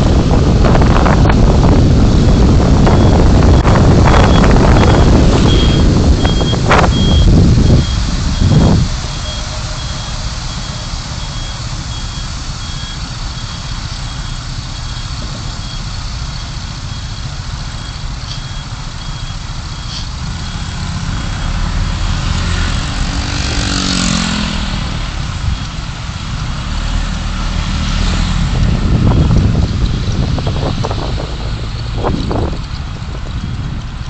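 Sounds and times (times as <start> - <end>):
car engine and road noise: 0.0 - 34.0
high-pitched reversing beep: 2.3 - 22.5
vehicle passing close by: 20.2 - 25.5, 26.5 - 32.6.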